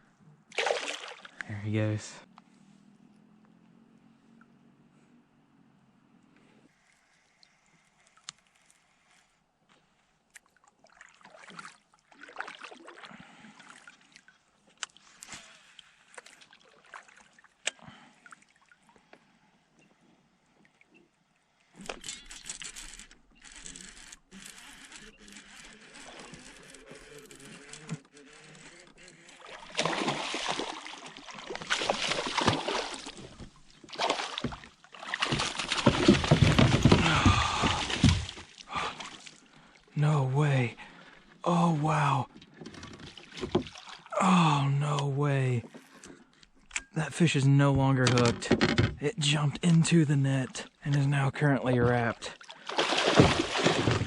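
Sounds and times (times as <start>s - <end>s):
water trickling and splashing: 0.5s - 1.6s, 10.3s - 19.1s, 29.4s - 39.9s, 42.3s - 44.2s, 51.7s - 54.0s.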